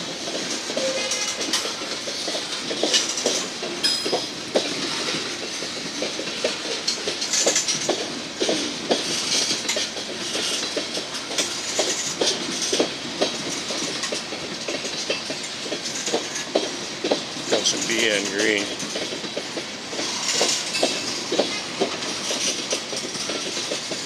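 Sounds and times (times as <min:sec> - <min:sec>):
train wheels clicking over rail joints: 0:00.0 - 0:24.0
metallic clanks and squeaks: 0:00.8 - 0:01.7.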